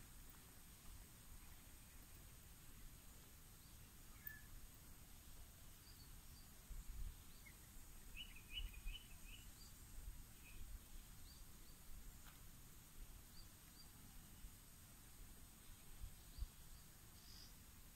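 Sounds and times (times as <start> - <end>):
faint bird chirps: 1.4 - 11.9, 13.3 - 14.6, 15.6 - 17.7.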